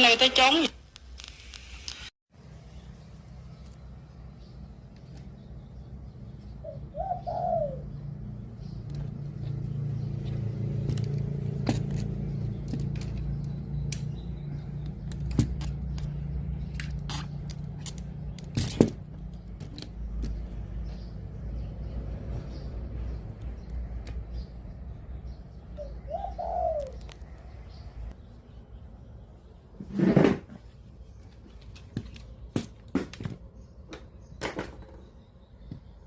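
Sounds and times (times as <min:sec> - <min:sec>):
doves cooing: 0:06.6 - 0:08.0, 0:25.8 - 0:27.5.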